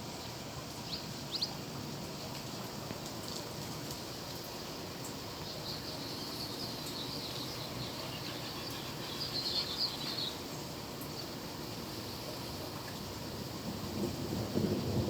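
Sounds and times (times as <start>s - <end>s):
small birds chirping: 5.4s - 10.5s.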